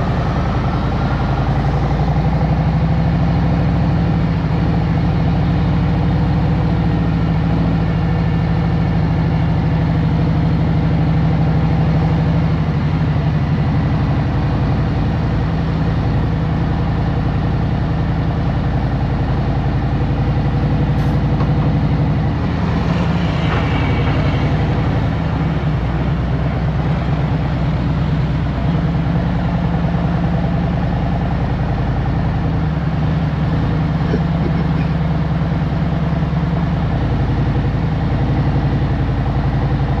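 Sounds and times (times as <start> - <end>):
motorcycle engine running at low speed: 0.0 - 40.0
rush of noise: 20.4 - 29.8.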